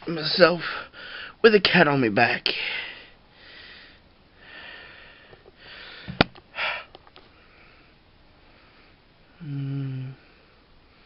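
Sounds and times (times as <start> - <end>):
man breathing and sniffing: 2.6 - 11.0.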